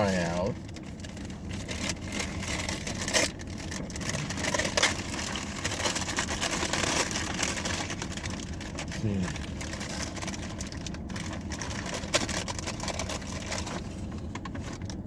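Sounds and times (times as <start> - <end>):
steady low rumble: 0.0 - 15.0
food packaging crinkling: 0.5 - 15.0.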